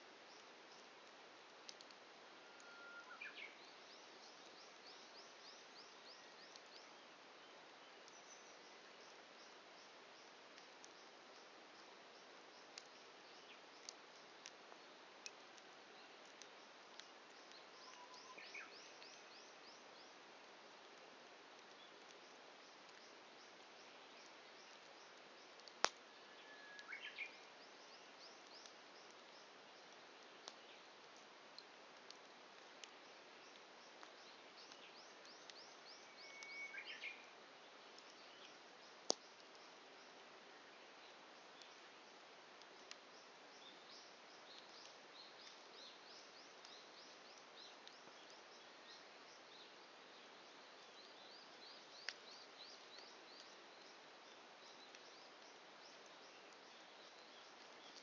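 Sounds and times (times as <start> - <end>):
wood crackling in fire: 0.0 - 2.7, 3.7 - 36.2, 37.2 - 51.0
bird singing short high notes: 2.4 - 3.3
campfire hissing: 20.2 - 26.4.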